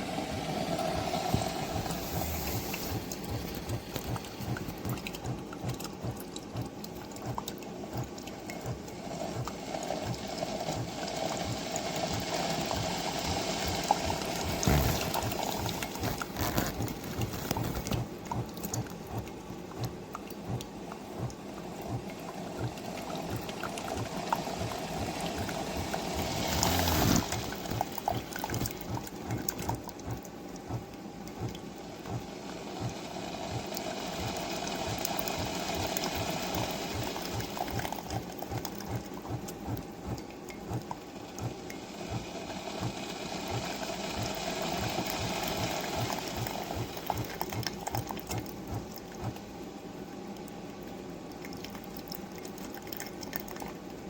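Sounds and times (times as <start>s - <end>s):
hot water pouring into cup: 0.0s - 5.3s, 9.5s - 19.0s, 22.2s - 29.6s
coffee maker brewing: 0.0s - 54.0s.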